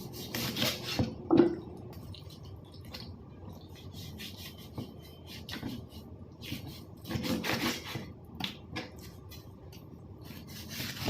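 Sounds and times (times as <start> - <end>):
rubbing and scraping food preparation: 0.0 - 1.2, 3.5 - 8.2, 8.8 - 11.0.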